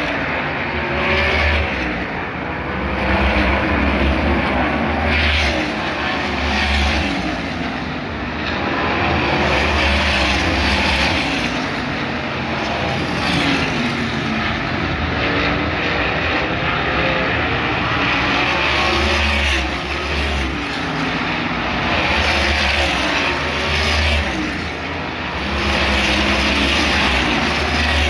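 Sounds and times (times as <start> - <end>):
race cars passing: 0.0 - 28.0.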